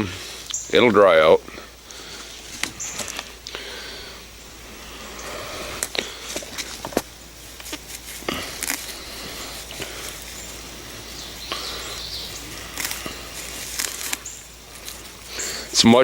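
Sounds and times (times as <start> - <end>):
wet grass rustling and snapping: 1.8 - 3.8, 5.7 - 16.0.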